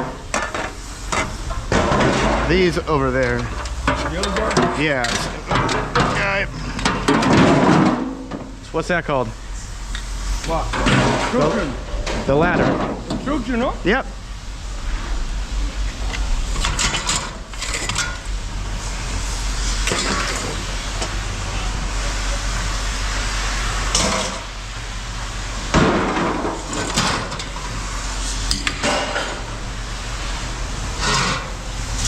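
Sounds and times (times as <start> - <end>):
scrap metal clanking: 0.0 - 8.7, 10.4 - 13.4, 15.9 - 21.1, 30.9 - 32.0
low engine hum: 11.5 - 23.7.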